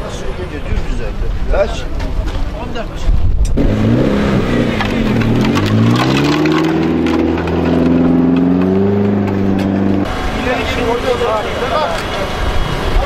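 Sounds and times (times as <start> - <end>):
race car engine revving: 3.6 - 13.0.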